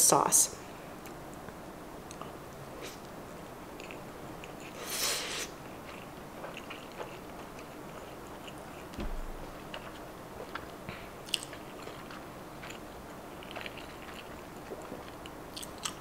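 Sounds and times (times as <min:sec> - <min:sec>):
chewing with wet mouth clicks: 0:02.1 - 0:02.4, 0:03.8 - 0:04.8, 0:05.6 - 0:09.0, 0:09.6 - 0:16.0.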